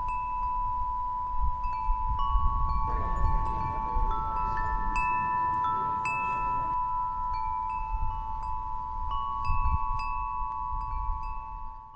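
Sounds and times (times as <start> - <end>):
chime tones ringing: 0.0 - 11.9
high sustained tone: 1.4 - 10.2.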